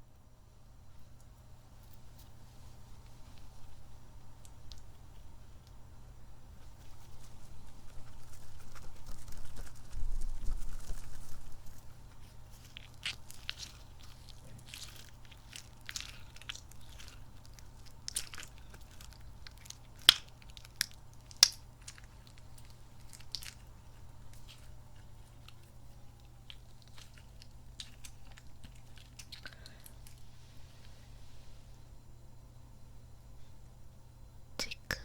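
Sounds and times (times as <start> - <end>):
squishy toy squelching: 12.0 - 30.2.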